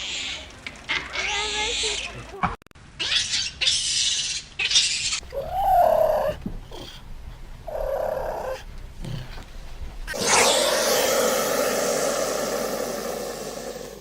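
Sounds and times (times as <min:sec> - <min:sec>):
animal rising and falling call: 0:05.3 - 0:07.0, 0:10.1 - 0:14.0
animal rasping breaths: 0:05.3 - 0:10.2.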